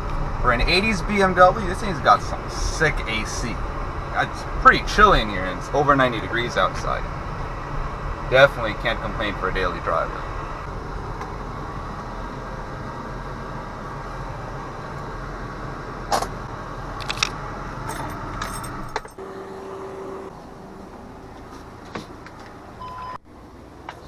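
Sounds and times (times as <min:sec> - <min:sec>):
car engine running: 0:00.0 - 0:24.0
keys jangling: 0:17.0 - 0:19.2.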